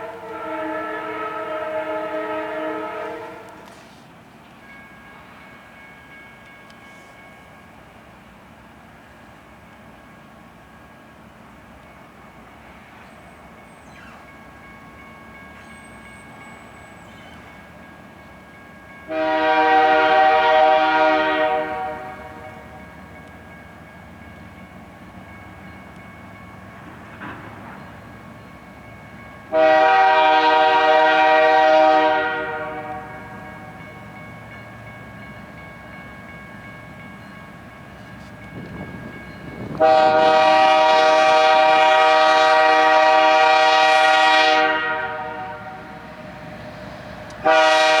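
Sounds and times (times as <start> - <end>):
locomotive air horn blasts: 0.0 - 4.0, 19.1 - 22.7, 29.5 - 33.7, 39.7 - 46.6, 47.3 - 48.0.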